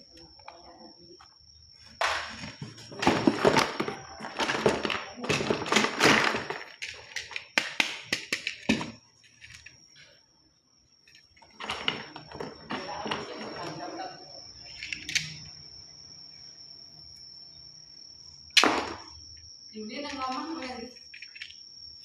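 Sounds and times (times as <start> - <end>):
rustling and clattering: 1.8 - 7.6, 11.0 - 13.9.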